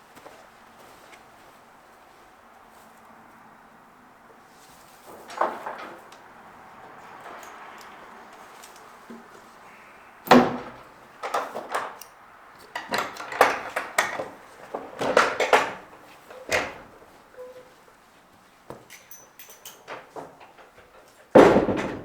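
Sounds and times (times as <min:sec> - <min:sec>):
wood and metal knocks and clattering: 0:05.0 - 0:09.6, 0:10.2 - 0:12.0, 0:12.6 - 0:17.6, 0:18.7 - 0:22.0.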